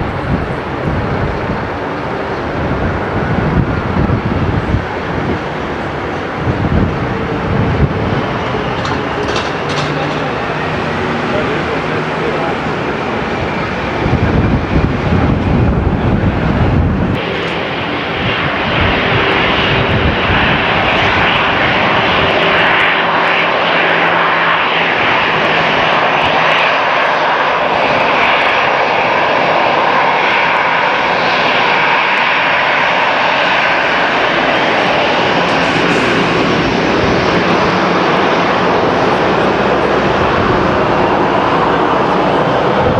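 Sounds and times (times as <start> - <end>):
heavy low rumble: 0.0 - 23.6, 32.8 - 42.9
airliner engines flying over: 0.0 - 42.9.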